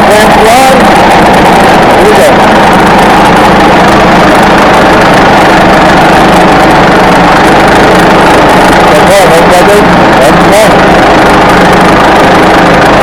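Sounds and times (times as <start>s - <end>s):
sawmill engine running loudly: 0.0s - 13.0s.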